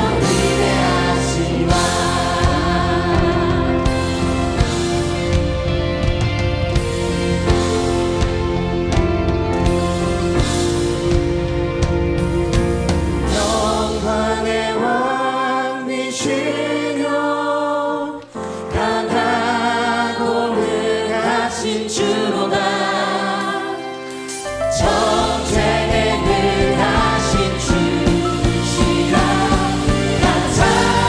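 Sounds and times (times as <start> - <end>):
group of singers: 0.0 - 6.0, 12.4 - 31.0
worship band playing: 0.0 - 31.0.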